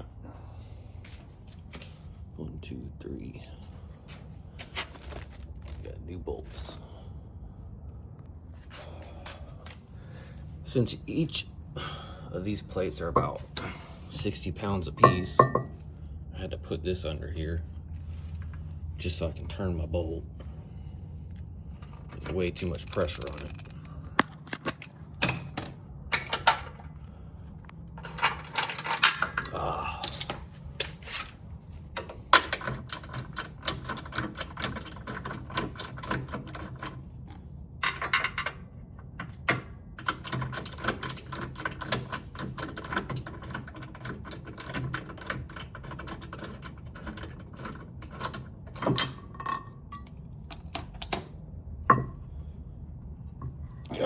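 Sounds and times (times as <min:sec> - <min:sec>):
low steady hum: 0:00.0 - 0:54.0
louder metal knocks: 0:15.0 - 0:15.8.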